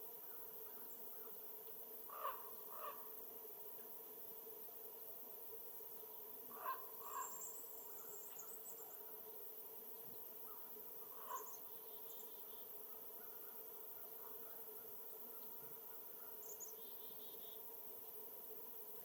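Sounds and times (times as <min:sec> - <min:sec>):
crow cawing: 0:02.1 - 0:03.1, 0:06.5 - 0:07.4.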